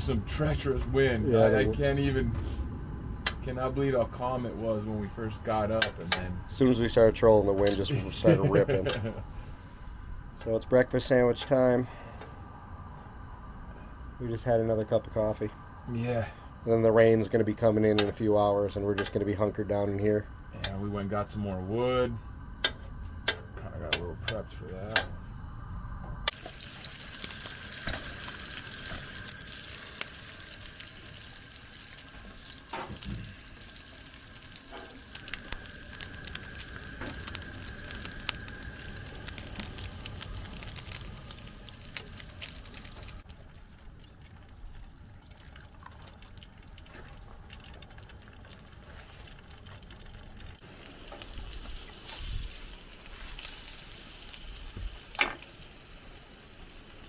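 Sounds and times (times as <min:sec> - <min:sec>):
food sizzling in a pan: 0:26.3 - 0:43.3, 0:50.6 - 0:57.0.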